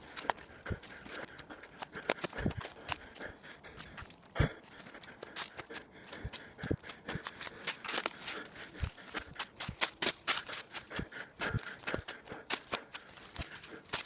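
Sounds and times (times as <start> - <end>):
footsteps crunching on trail: 0.0 - 14.0.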